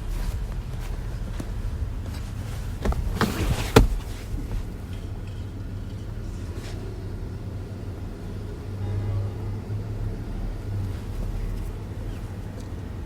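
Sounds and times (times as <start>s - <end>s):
steady low hum: 0.0s - 13.0s
sharp clicks and knocks: 2.8s - 5.4s.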